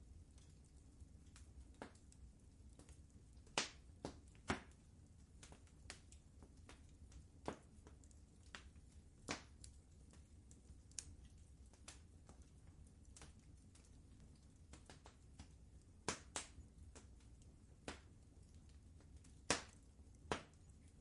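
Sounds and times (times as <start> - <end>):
low steady rumble: 0.0 - 21.0
wood fire crackling: 0.0 - 21.0.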